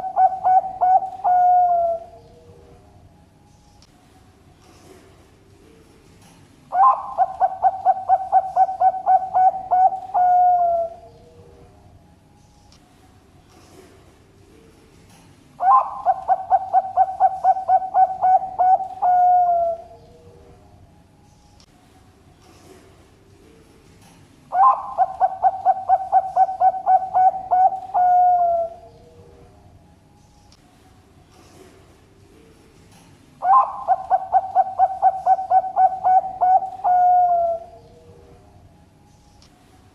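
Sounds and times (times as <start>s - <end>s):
dove cooing: 0.0s - 2.7s, 6.7s - 11.6s, 15.6s - 20.6s, 24.5s - 29.5s, 33.4s - 38.4s.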